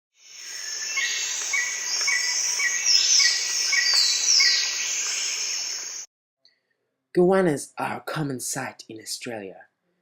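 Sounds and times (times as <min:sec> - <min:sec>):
bird chirping: 0:00.2 - 0:06.1
descending whistled bird calls: 0:00.2 - 0:06.1
high insect drone: 0:00.2 - 0:06.1.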